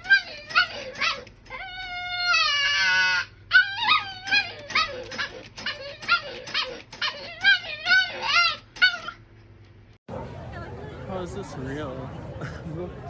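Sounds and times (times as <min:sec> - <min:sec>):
dog howling: 0:00.0 - 0:09.2
dog whining yips: 0:00.0 - 0:09.2.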